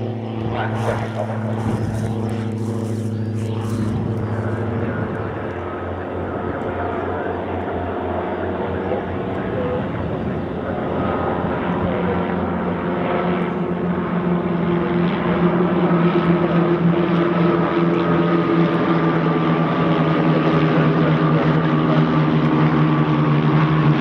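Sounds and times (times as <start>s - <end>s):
propeller aircraft engine droning: 0.0s - 24.0s.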